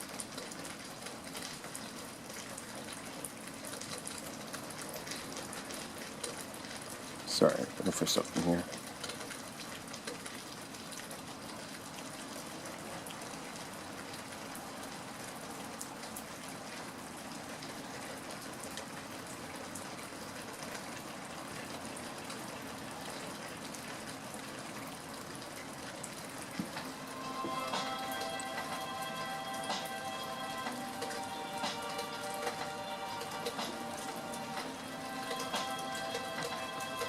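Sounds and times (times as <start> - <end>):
rain pattering: 0.0 - 37.0.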